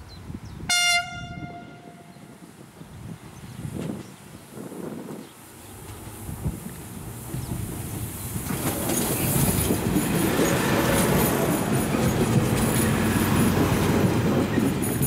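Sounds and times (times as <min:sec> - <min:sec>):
diesel train passing: 0:00.7 - 0:15.0
train wheels on rails: 0:03.2 - 0:15.0.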